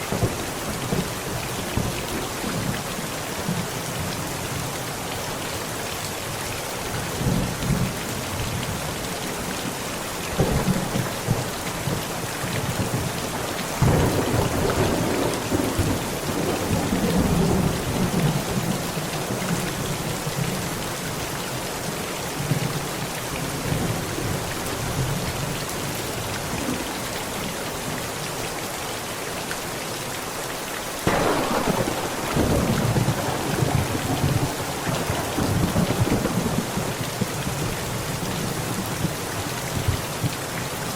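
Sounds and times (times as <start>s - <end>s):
heavy rain on a tent: 0.0s - 40.9s
thunder: 13.7s - 18.7s, 31.0s - 37.8s.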